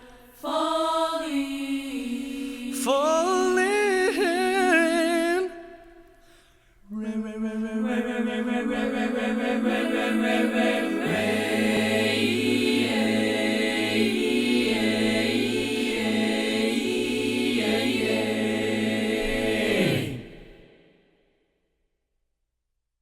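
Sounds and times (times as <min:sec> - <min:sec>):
vocal ensemble holding a chord: 0:00.0 - 0:05.9, 0:06.8 - 0:20.6.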